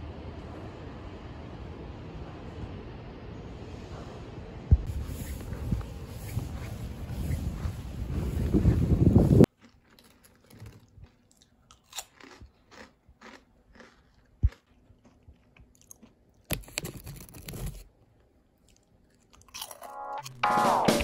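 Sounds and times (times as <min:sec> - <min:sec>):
crunching snacks: 0:09.5 - 0:20.4.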